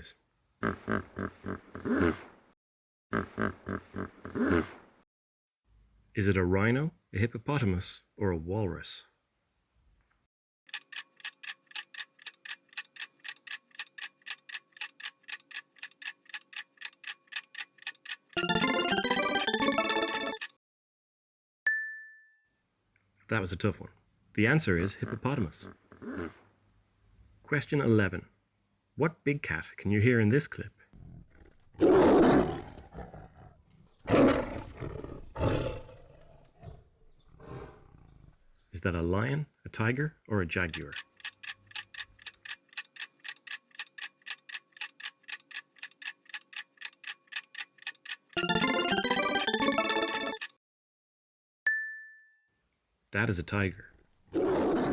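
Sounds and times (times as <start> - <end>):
countdown clock ticking: 10.7 - 20.5, 40.6 - 50.5
bright chiming jingle: 18.4 - 20.4, 48.4 - 50.4
tiger roaring: 25.0 - 26.5, 31.0 - 38.4, 54.3 - 54.9.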